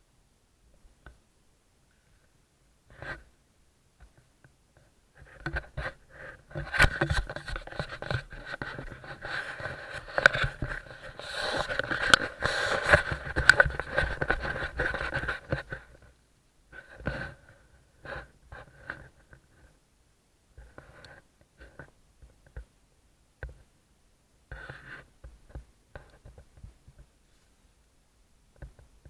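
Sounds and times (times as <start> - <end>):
scraping and rustling with clicks: 4.0 - 16.1, 16.8 - 19.8, 24.5 - 27.6.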